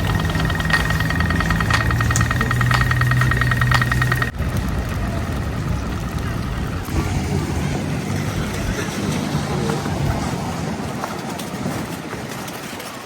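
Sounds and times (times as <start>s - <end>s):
rapid electronic beeping: 0.0s - 4.3s
engine idling hum: 0.0s - 9.2s
street noise: 0.0s - 13.0s.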